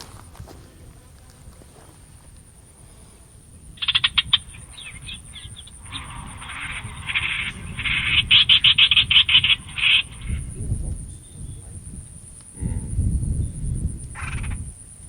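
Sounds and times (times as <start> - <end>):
animal chattering calls: 3.7 - 11.1, 14.1 - 14.7.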